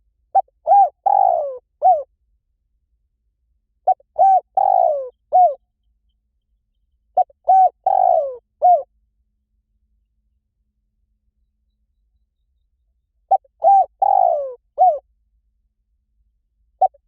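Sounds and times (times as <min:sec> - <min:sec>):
dove cooing: 0:00.3 - 0:02.1, 0:03.8 - 0:05.6, 0:07.2 - 0:08.9, 0:13.3 - 0:15.0, 0:16.8 - 0:17.0.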